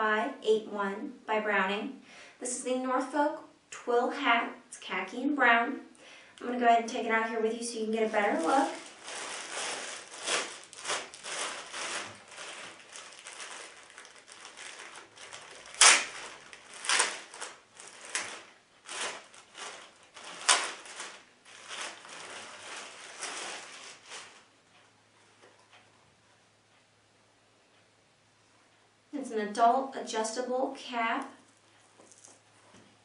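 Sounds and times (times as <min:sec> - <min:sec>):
packaging rustling: 0:07.8 - 0:24.5, 0:31.5 - 0:32.6.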